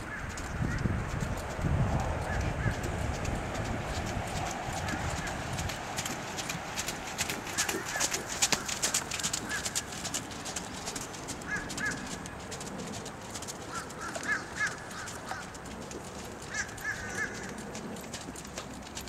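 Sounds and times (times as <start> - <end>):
distant bird calls: 3.9 - 10.1, 10.8 - 12.4, 13.6 - 15.6, 16.4 - 17.6.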